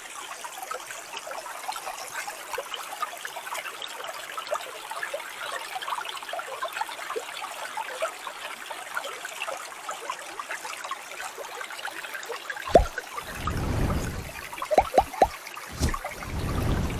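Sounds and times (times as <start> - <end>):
low thump: 12.7 - 16.9
stream babbling over rocks: 12.7 - 16.9.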